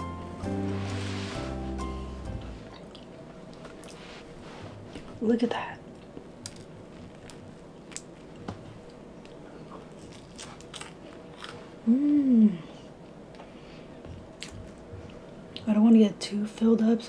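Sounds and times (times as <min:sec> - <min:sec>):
person chewing crisp crust: 0:09.2 - 0:12.0
hummed mmm: 0:11.8 - 0:13.0.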